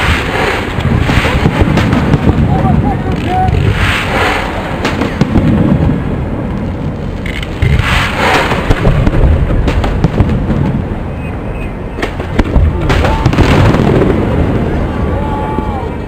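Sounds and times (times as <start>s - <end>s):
firework shells bursting: 0.0s - 2.4s, 3.2s - 5.8s, 7.2s - 10.8s
firework crackling: 0.0s - 11.4s, 12.0s - 15.9s
deep rumbling booms: 0.0s - 16.0s.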